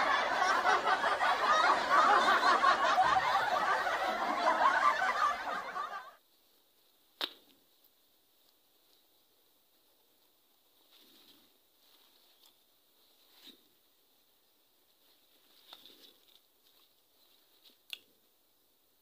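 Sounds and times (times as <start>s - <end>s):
leaves rustling and crackling: 9.8s - 13.6s, 14.8s - 17.9s.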